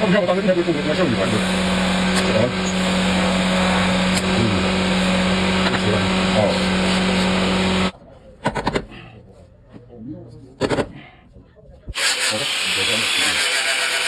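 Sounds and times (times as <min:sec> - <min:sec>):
workshop machine humming: 0:00.0 - 0:08.0, 0:11.9 - 0:14.0.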